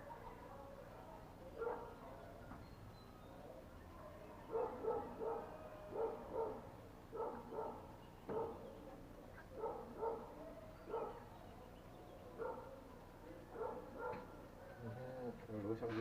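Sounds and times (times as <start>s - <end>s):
dog barking: 0.0s - 2.6s, 3.5s - 8.8s, 9.4s - 11.4s, 12.3s - 14.9s.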